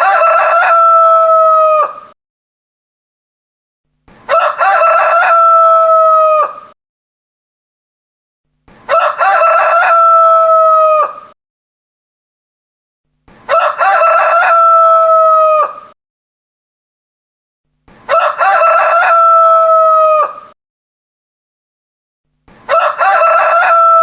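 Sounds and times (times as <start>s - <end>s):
rooster crowing: 0.0s - 2.2s, 4.3s - 6.8s, 8.9s - 11.4s, 13.5s - 16.0s, 18.1s - 20.6s, 22.7s - 24.0s.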